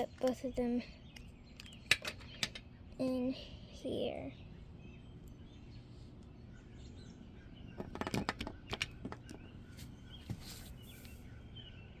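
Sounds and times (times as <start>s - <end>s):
plastic toys clicking: 7.8s - 9.4s.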